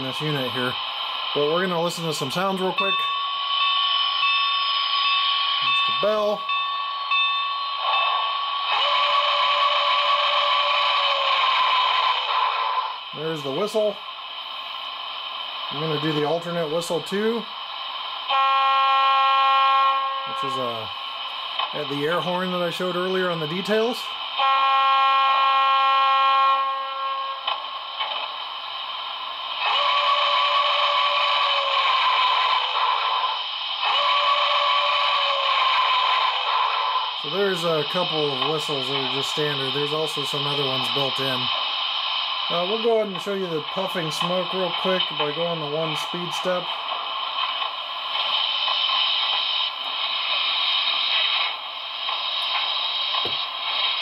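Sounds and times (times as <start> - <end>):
model locomotive steam hiss: 0.0 - 2.8, 7.8 - 54.0
model train steam whistle: 7.8 - 13.0, 18.3 - 20.9, 24.4 - 27.5, 29.6 - 41.4.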